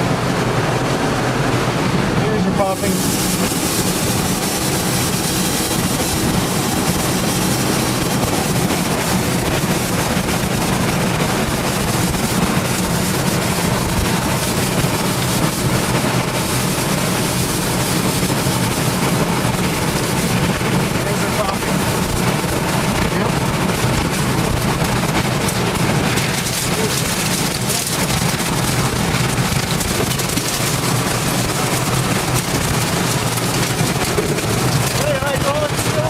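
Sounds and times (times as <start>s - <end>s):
tornado winds rushing: 0.0s - 36.0s.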